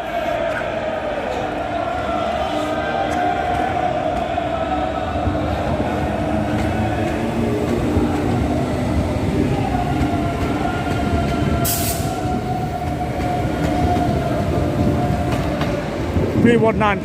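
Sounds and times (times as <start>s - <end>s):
train rumbling: 0.0s - 17.0s
train whine: 0.0s - 17.0s.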